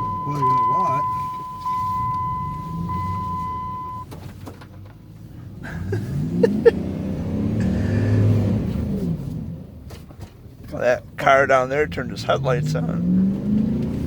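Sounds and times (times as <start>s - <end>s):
seatbelt warning chime: 0.0s - 4.1s.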